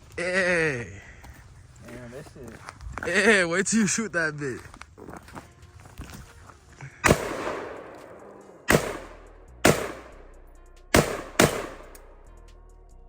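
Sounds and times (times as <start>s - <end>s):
gunshots with echo: 7.0s - 12.2s.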